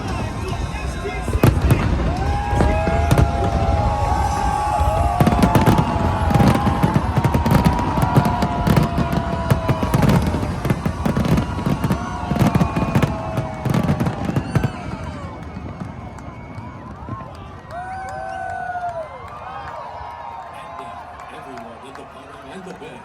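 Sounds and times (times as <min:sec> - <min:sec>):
fireworks whistling: 0:00.0 - 0:17.6
fireworks bangs and crackles: 0:00.0 - 0:20.4.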